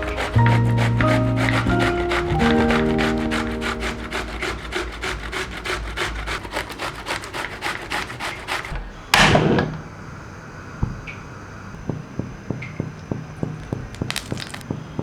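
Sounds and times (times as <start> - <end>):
fast food preparation strokes: 0.0 - 8.8, 13.6 - 14.7.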